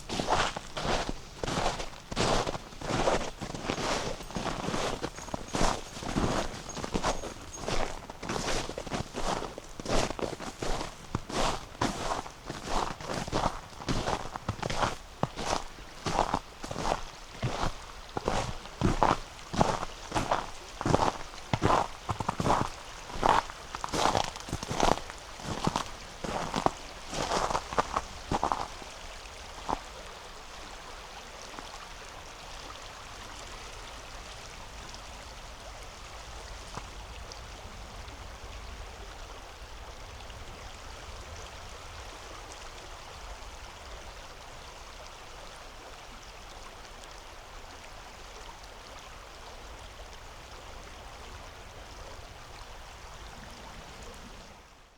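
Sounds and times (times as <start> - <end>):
footsteps on frozen snow: 0.0 - 28.8
river flowing: 0.0 - 54.9.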